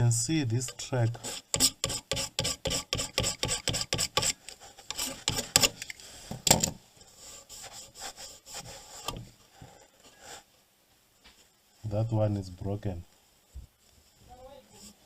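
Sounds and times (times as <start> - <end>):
scraping circuit board: 0.6 - 5.9.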